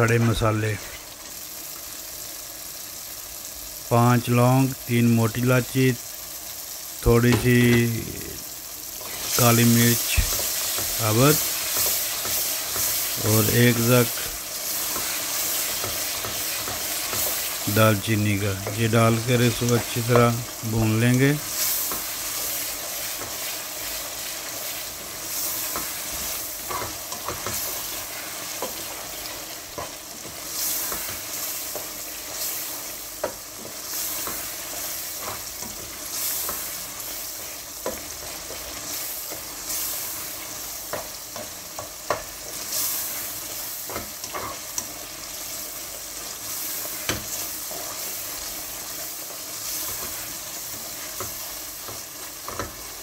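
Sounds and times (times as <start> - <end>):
spices sizzling in oil: 0.0 - 53.0
spatula stirring and scraping: 10.0 - 13.3, 14.1 - 17.7, 21.4 - 53.0.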